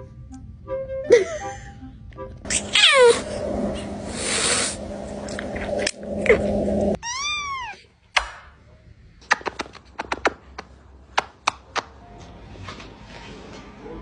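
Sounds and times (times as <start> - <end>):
cat meowing: 2.5 - 3.3, 7.0 - 7.8
cat hissing and crying: 2.5 - 4.8.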